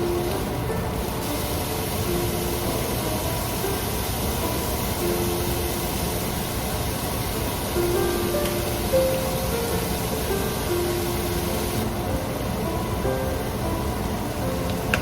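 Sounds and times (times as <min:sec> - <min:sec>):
soft background music: 0:00.0 - 0:15.0
steady hiss: 0:00.0 - 0:15.0.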